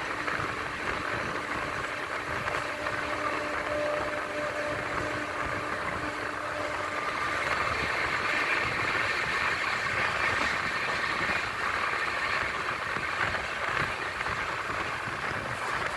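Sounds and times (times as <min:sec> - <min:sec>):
train rushing past: 0:00.0 - 0:15.9.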